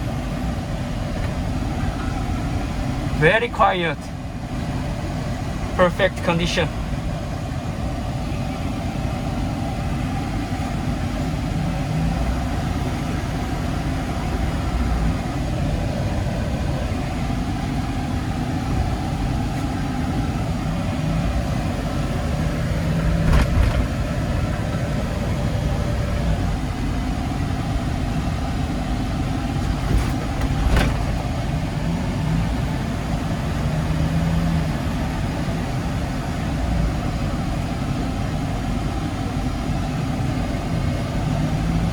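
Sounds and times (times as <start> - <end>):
diesel engine running: 0.0 - 41.9
road noise: 0.0 - 41.9
short thumps: 23.0 - 24.1, 29.6 - 31.3.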